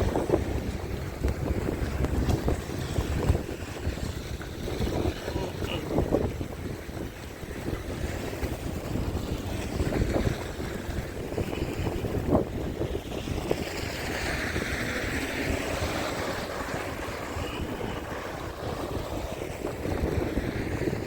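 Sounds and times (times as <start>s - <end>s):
low rumble: 0.0s - 6.4s
wind buffeting microphone: 0.0s - 21.0s.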